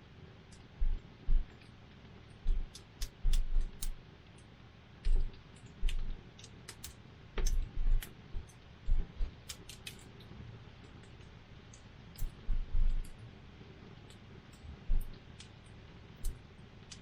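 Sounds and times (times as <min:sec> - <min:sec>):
low steady hiss: 0:00.0 - 0:17.0.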